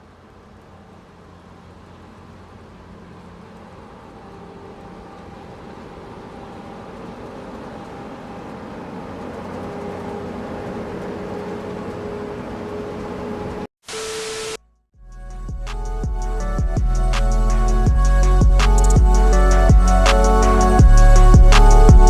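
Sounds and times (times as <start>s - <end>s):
mechanical hum with rushing: 0.0s - 13.7s, 15.4s - 22.0s.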